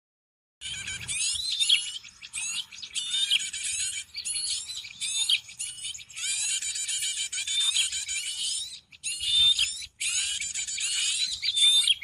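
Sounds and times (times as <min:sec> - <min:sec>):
small birds chirping and whistling: 0:00.6 - 0:12.0.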